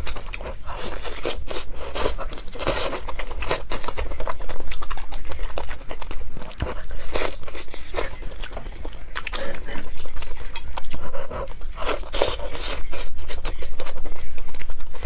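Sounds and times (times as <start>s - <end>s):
mouth crunches and clicks: 0.0s - 15.0s
person chewing and biting meat: 0.0s - 15.0s.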